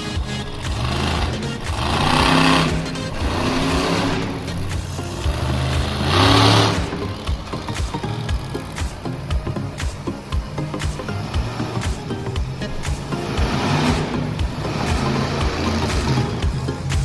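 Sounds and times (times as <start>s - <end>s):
music playing: 0.0s - 17.0s
truck engine revving: 0.0s - 17.0s.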